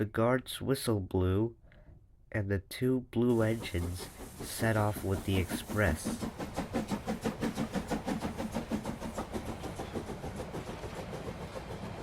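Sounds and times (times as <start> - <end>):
steam locomotive chuffing: 3.2 - 12.0.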